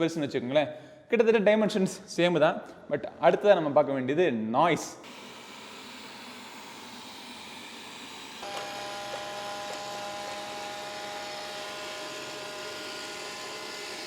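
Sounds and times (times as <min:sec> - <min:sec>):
motor whine: 0:05.0 - 0:14.0.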